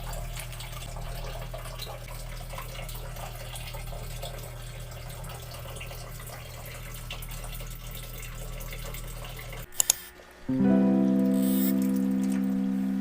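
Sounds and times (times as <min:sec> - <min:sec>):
sharp click: 0:09.7 - 0:10.1.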